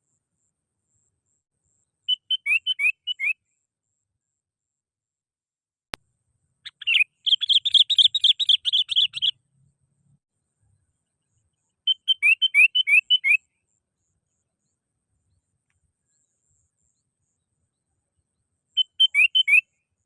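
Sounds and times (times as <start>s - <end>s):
bulbul singing: 2.1s - 3.4s, 6.6s - 9.4s, 11.9s - 13.4s, 18.8s - 19.7s.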